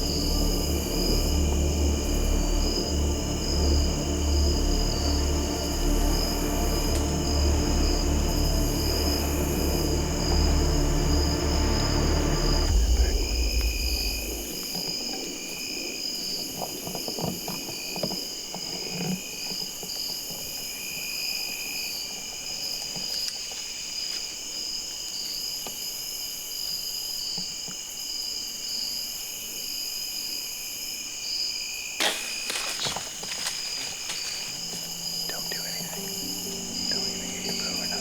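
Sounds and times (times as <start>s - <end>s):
background music: 0.0s - 14.6s, 32.2s - 38.0s
crickets trilling: 0.0s - 38.0s.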